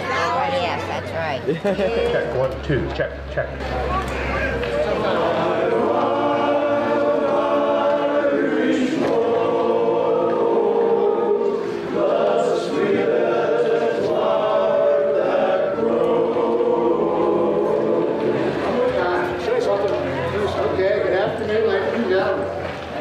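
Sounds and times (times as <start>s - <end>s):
choir singing held chords: 4.8s - 19.4s.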